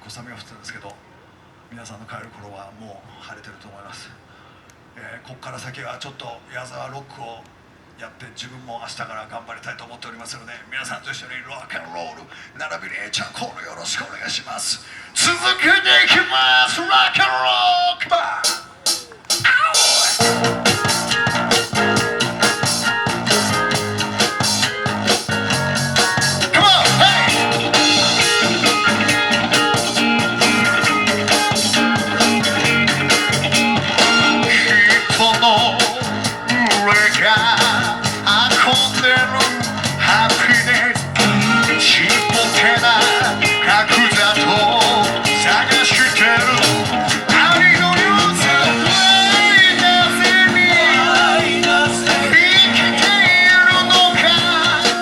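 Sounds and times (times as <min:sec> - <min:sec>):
rock band playing: 0:18.4 - 0:55.0
electric guitar bending notes: 0:20.2 - 0:55.0.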